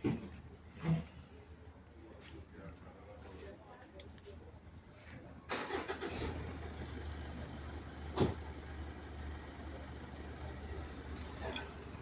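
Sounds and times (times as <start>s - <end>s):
vehicle engine running: 5.2s - 12.0s.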